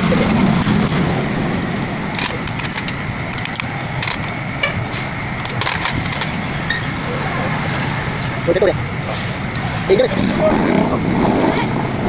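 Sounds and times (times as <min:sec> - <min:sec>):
street noise hum: 0:00.0 - 0:12.0.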